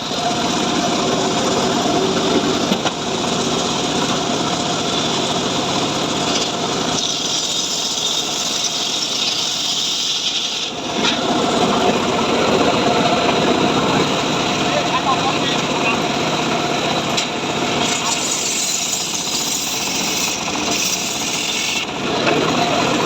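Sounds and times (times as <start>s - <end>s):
chainsaw cutting wood: 17.9s - 22.0s.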